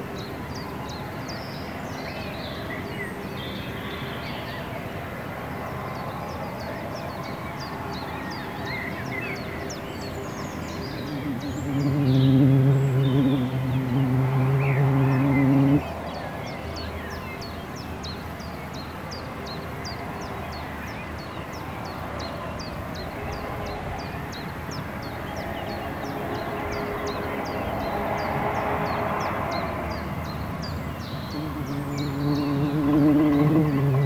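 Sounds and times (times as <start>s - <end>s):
songbird chip notes: 10.9s - 15.9s, 31.3s - 34.0s.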